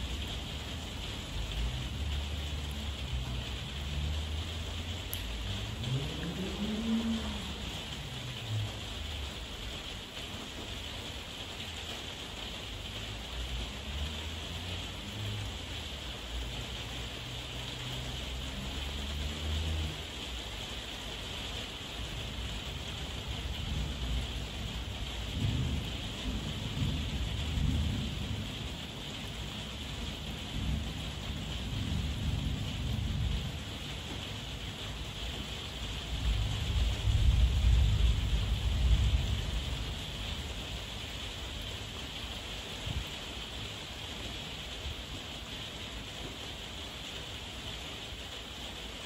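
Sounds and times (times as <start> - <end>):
heavy rain: 0.0 - 49.0
thunder rumbling: 1.2 - 10.2, 22.2 - 41.6.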